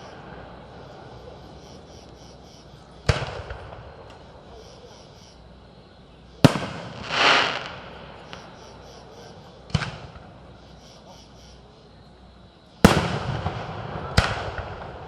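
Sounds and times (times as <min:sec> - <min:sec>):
hissing fireworks noise: 0:00.0 - 0:05.5, 0:06.3 - 0:11.1, 0:12.8 - 0:15.0
fireworks bangs: 0:03.0 - 0:04.2, 0:06.4 - 0:08.5, 0:09.6 - 0:10.3, 0:12.8 - 0:15.0.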